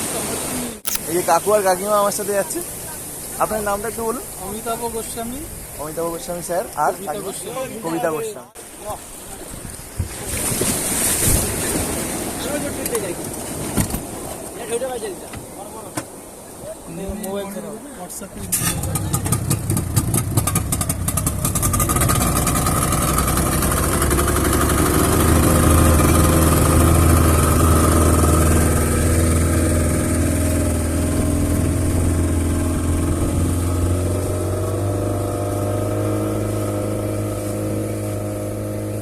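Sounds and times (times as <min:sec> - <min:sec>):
outboard motor running: 0:19.0 - 0:39.0.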